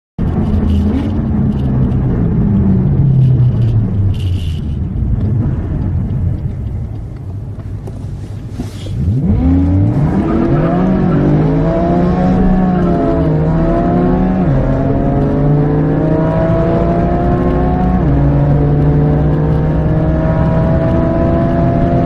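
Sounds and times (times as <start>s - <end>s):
sports car engine revving: 8.7s - 22.0s.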